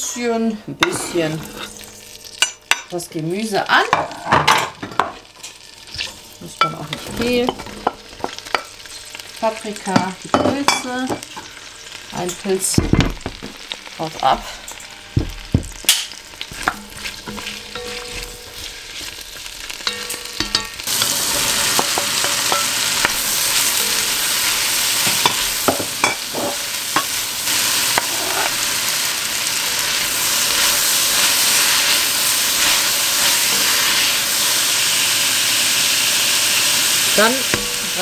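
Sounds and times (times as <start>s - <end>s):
vegetables frying in oil: 0.0s - 4.4s, 5.0s - 38.0s
wooden spatula scraping a pot: 0.9s - 1.8s, 16.4s - 20.2s, 27.8s - 28.7s.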